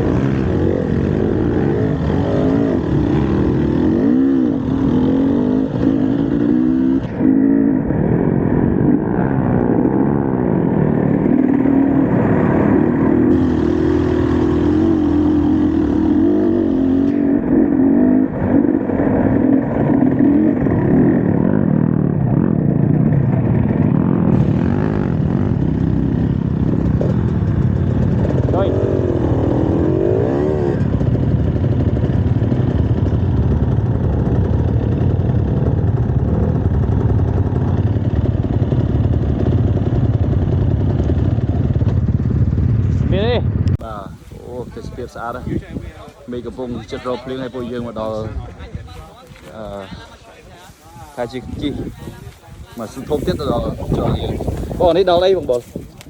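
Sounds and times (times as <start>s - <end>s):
dirt bike engine revving: 0.0s - 43.6s.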